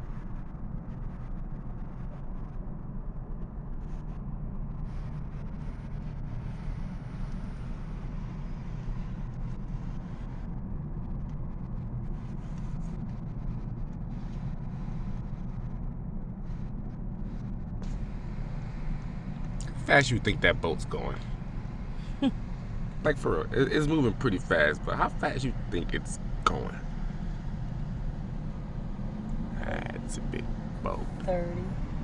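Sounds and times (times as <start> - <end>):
large boat engine rumble: 19.6 - 26.8, 27.8 - 32.0.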